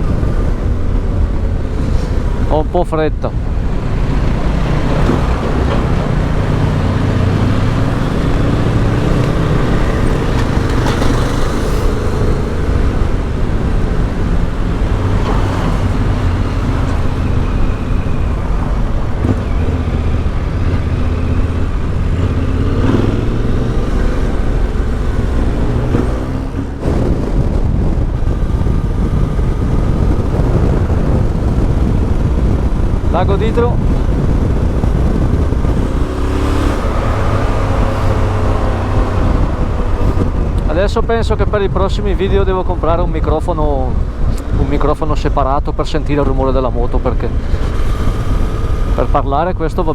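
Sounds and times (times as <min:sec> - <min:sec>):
wind rush on microphone: 0:00.0 - 0:49.9
motorcycle engine running: 0:03.2 - 0:42.6.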